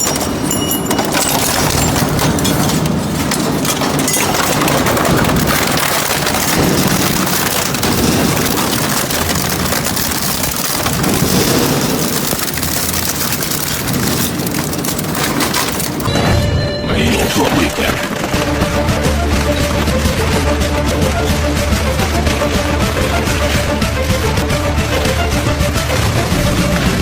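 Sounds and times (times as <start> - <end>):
shredder grinding metal: 0.0 - 16.2, 17.4 - 27.0.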